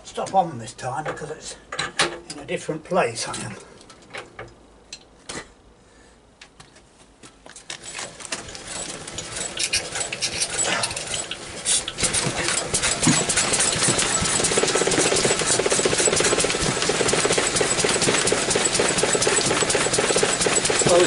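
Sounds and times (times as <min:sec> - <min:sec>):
motor driving belt rattling: 0:07.8 - 0:21.0.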